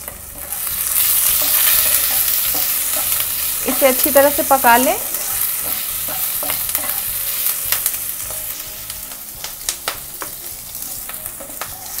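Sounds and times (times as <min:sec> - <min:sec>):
ghee sizzling in a pan: 0:00.0 - 0:12.0
wooden spatula scraping a pan: 0:00.4 - 0:07.2.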